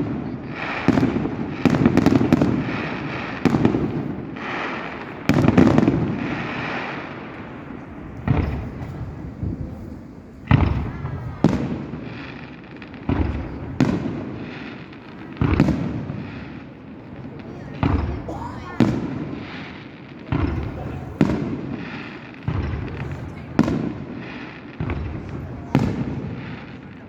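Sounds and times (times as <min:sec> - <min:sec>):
fireworks bangs with echo: 0:00.0 - 0:27.0
fireworks crackle: 0:00.0 - 0:27.0.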